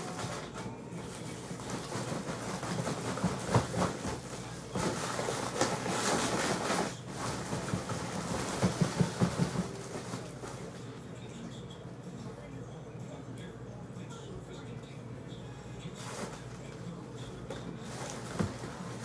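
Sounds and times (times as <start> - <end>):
packages rustling: 0.0 - 10.9, 17.8 - 19.0.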